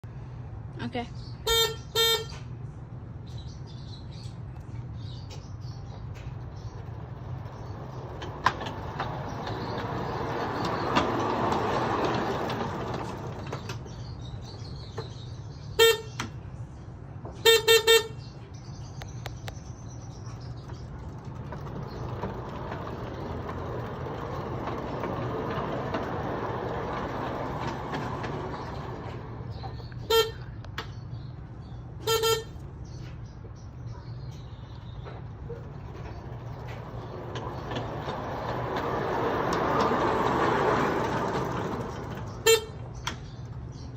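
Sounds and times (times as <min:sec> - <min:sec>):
locomotive horn toots: 0:01.4 - 0:02.5, 0:15.8 - 0:16.3, 0:17.4 - 0:18.2, 0:30.0 - 0:30.6, 0:32.0 - 0:32.7, 0:42.3 - 0:42.9
train passing by: 0:06.4 - 0:15.1, 0:20.4 - 0:30.2, 0:35.2 - 0:42.8.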